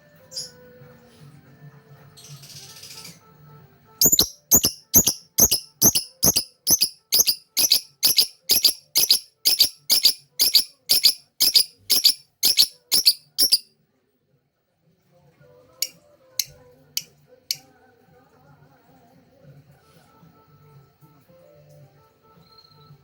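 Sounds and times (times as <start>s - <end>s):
lovebird chirping: 4.0s - 13.7s.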